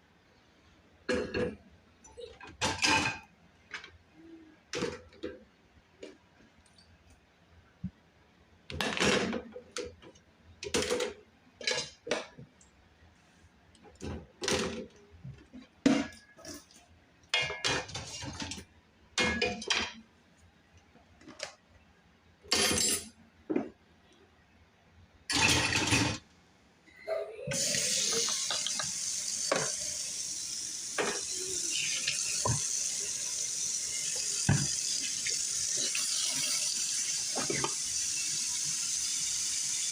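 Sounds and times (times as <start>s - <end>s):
dishes and cutlery clattering: 22.5s - 23.2s, 25.3s - 26.2s
tap running into sink: 27.6s - 30.0s, 30.9s - 33.4s, 34.0s - 38.0s.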